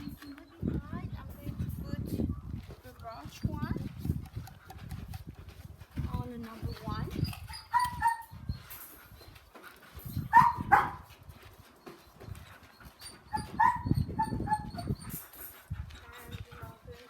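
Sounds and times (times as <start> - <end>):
dog yipping and barking: 7.3 - 8.5, 10.1 - 11.1, 12.7 - 15.2.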